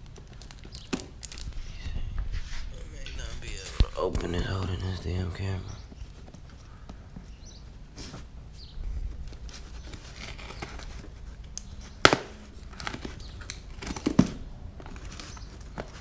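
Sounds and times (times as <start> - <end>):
packaging rustling and crinkling: 0.0 - 1.8, 9.0 - 11.5, 12.5 - 16.0.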